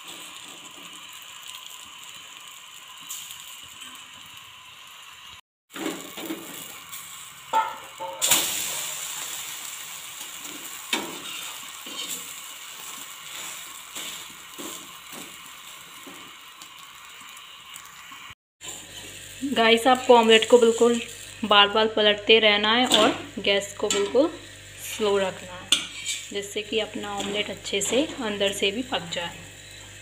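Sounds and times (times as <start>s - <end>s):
omelette sizzling in a pan: 0.0s - 21.8s, 23.1s - 30.0s
spatula scraping and knocking pan: 25.7s - 26.3s.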